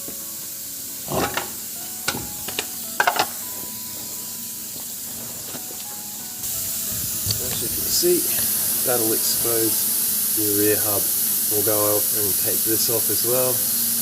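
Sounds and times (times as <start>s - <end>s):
steady hiss: 0.0s - 14.0s
metallic clunks and knocks: 1.1s - 3.4s.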